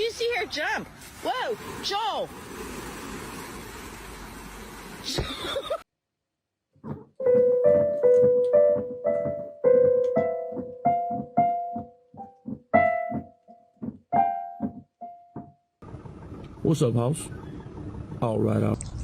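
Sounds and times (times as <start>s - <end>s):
piano playing single notes: 7.2s - 15.7s.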